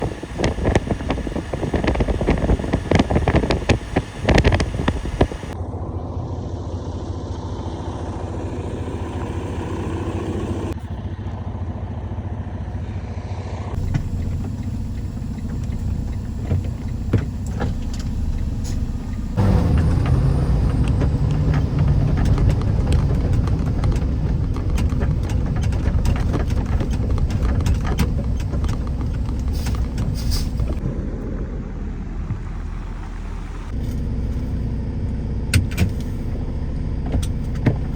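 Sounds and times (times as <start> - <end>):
crackling: 0.0 - 5.6, 13.8 - 30.8
vehicle engine and tyres rumbling: 0.0 - 37.9.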